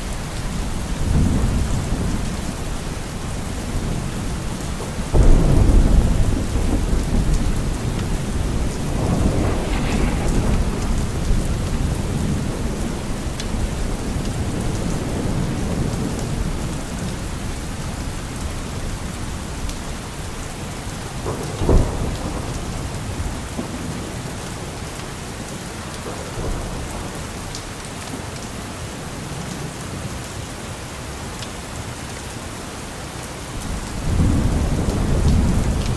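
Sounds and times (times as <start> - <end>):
steady rain: 0.0 - 35.9
thunder rumble: 0.1 - 24.8, 33.6 - 35.9
sharp thunderclap: 5.1 - 16.9, 21.1 - 24.0, 33.7 - 35.9.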